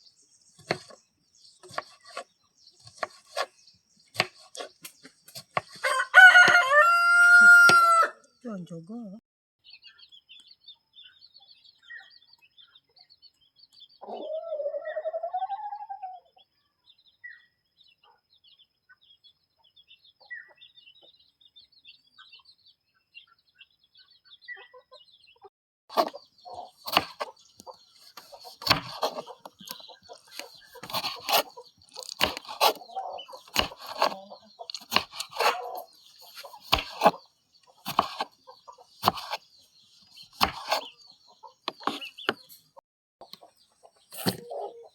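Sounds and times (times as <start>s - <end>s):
small birds chirping: 0.0s - 44.9s
chickens clucking: 14.0s - 16.4s, 24.3s - 39.5s, 40.4s - 44.9s.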